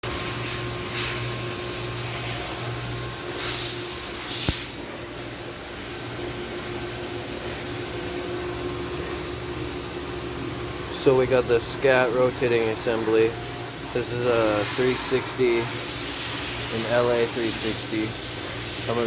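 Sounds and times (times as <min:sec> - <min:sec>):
fan hiss and hum: 0:00.0 - 0:19.0
spray-like hiss: 0:03.3 - 0:05.9, 0:14.1 - 0:19.0.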